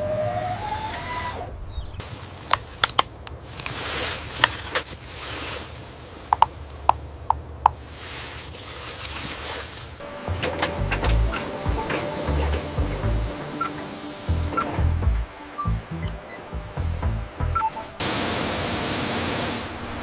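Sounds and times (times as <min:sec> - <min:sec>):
rustling: 0:01.2 - 0:06.7, 0:07.8 - 0:13.8
low steady hum: 0:10.0 - 0:20.0.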